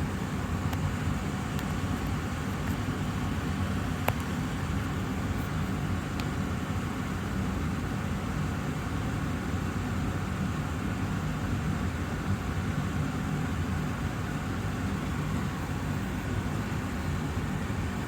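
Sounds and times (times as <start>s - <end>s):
air purifier fan running: 0.0s - 18.0s.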